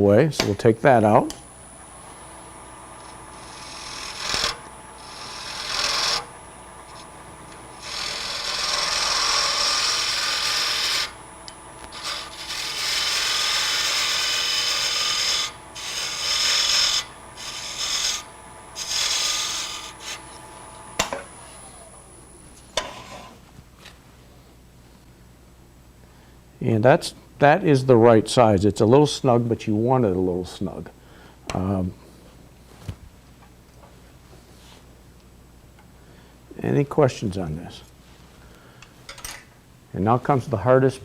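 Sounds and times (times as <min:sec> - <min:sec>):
lathe tool hissing cuts: 0:01.4 - 0:23.3.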